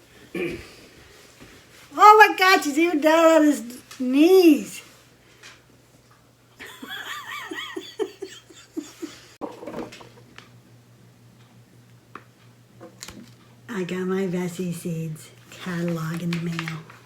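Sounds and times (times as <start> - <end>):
person laughing: 6.6 - 9.4.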